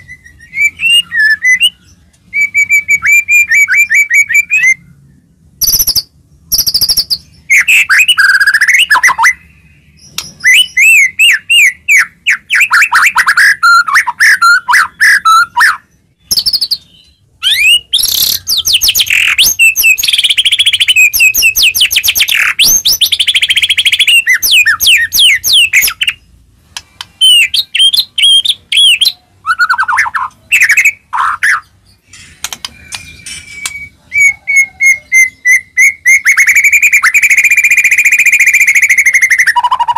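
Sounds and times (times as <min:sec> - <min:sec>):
bird singing whistles and trills: 0:00.0 - 0:05.0, 0:05.6 - 0:26.2, 0:27.1 - 0:32.0, 0:32.6 - 0:39.9.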